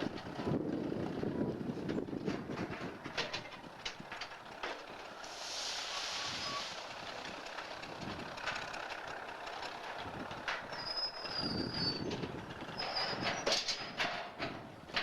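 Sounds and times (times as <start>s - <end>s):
wheels and couplers clanking: 0.0s - 15.0s
air brakes hissing: 5.2s - 7.0s
high wheel squeal: 5.2s - 7.0s, 10.6s - 13.9s.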